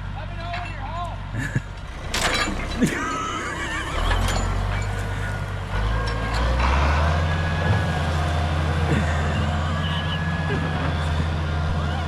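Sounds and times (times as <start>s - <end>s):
tractor engine under load: 0.0s - 12.0s.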